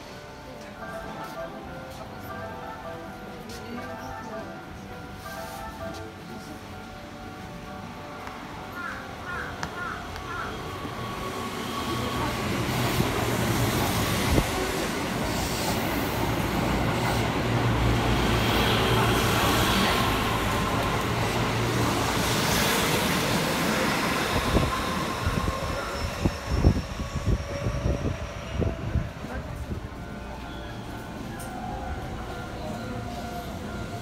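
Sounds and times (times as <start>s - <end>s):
train wheels rumbling on rail: 9.2s - 34.0s.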